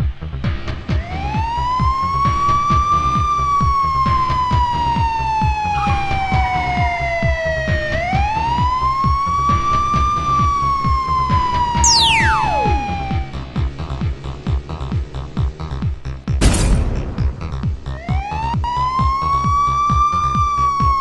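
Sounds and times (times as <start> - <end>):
siren wailing: 1.0 - 13.8, 18.0 - 21.0
electronic music with fast beat: 11.8 - 13.3.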